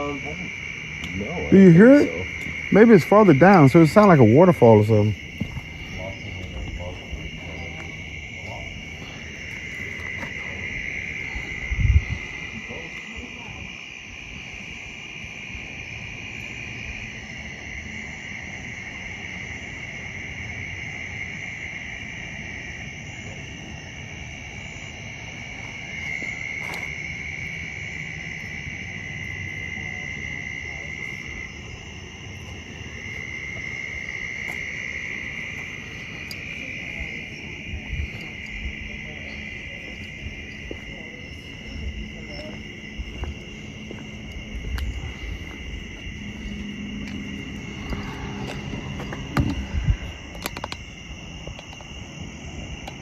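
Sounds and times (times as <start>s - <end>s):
insects shrill drone: 0.0s - 53.0s
low rushing noise: 41.3s - 51.4s.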